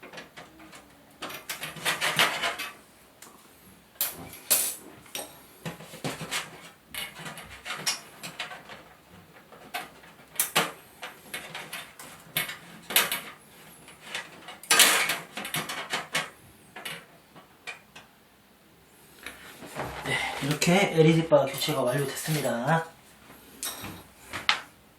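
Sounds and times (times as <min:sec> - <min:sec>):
parts clicking and rattling: 0:00.0 - 0:02.8, 0:04.0 - 0:18.1.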